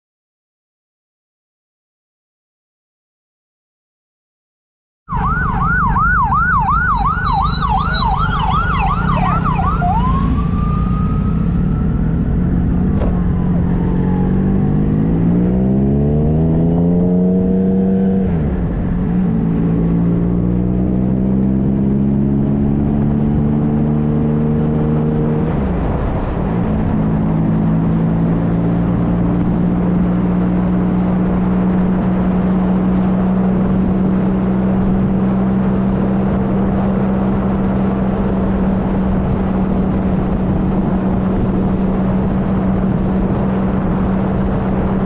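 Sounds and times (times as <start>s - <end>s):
emergency siren yelping: 5.1s - 15.5s
wind and road noise: 5.1s - 45.0s
motorcycle engine accelerating: 5.3s - 45.0s.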